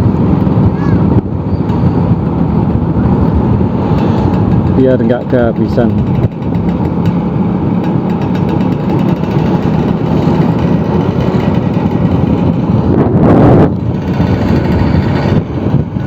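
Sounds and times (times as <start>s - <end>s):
road and wind noise: 0.0s - 16.0s
scooter engine running: 4.0s - 16.0s.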